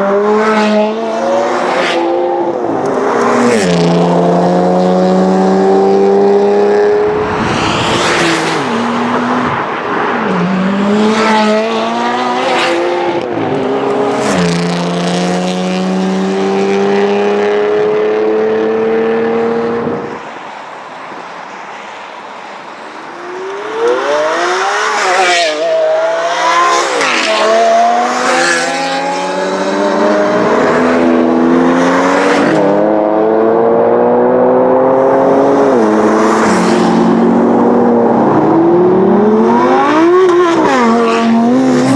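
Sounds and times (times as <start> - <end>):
car revving: 0.0 - 20.2
car engines accelerating hard: 0.0 - 20.4, 22.6 - 41.9.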